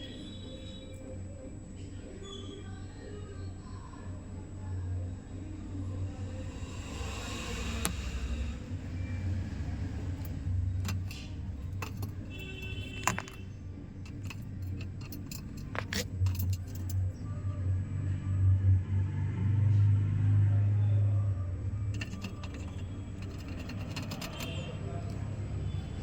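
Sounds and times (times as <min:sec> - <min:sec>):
steady low hum: 0:00.0 - 0:19.2, 0:20.8 - 0:26.0
brief pitched squeak: 0:02.2 - 0:02.7
light metallic clinks and taps: 0:10.2 - 0:17.1, 0:21.9 - 0:25.5.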